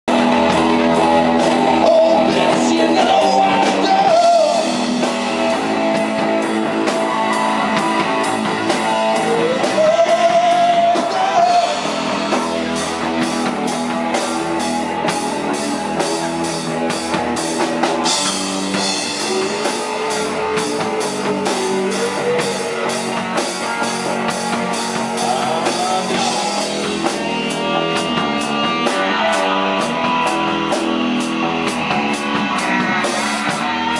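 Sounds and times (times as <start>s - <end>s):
rock band playing live: 0.0s - 33.9s.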